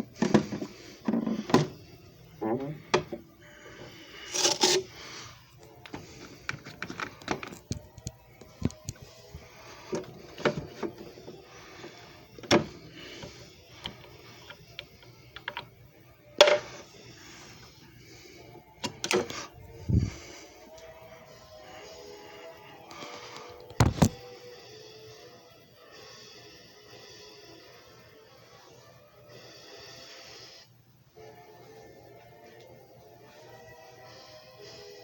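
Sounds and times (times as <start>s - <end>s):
faint music: 0.0s - 35.0s
hard plastic parts clicking: 5.8s - 9.0s, 13.8s - 15.7s.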